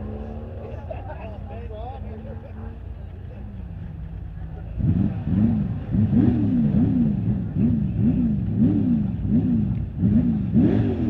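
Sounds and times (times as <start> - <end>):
truck engine revving hard: 4.8 - 11.0.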